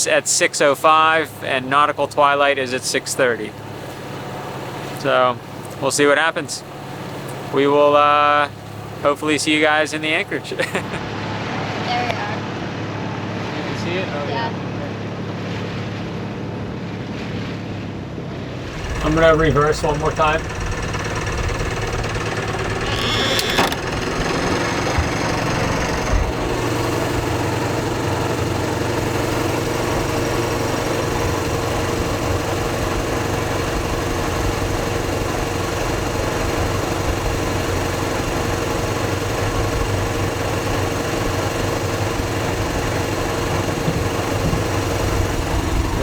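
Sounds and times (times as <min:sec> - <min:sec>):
brief rattling: 0:18.6 - 0:26.4
boat engine running: 0:18.6 - 0:46.0.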